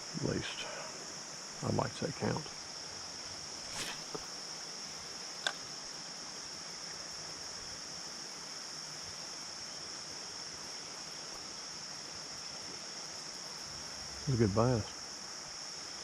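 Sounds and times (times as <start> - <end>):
insects chirping: 0.0 - 16.0
brief rustle: 3.6 - 4.3.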